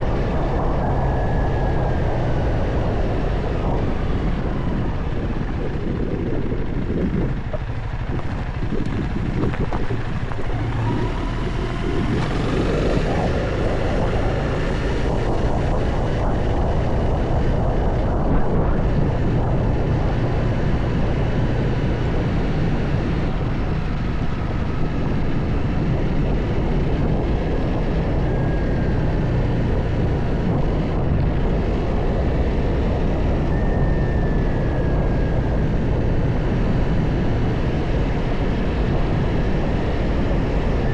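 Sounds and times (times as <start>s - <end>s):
wind noise on microphone: 0.0s - 40.9s
motorcycle engine revving: 0.2s - 31.8s.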